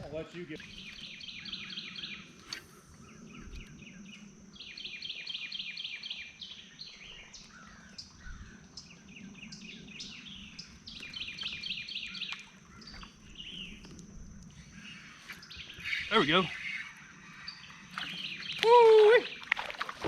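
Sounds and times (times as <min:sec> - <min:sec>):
songbird trilling: 0:00.6 - 0:02.3, 0:14.6 - 0:19.5.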